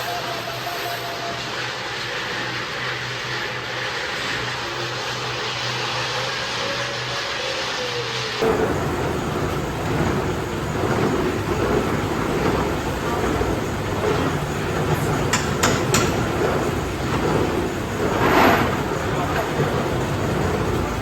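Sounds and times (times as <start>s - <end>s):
workshop machinery din: 0.0s - 21.0s
sharp metallic knocks: 14.3s - 17.0s.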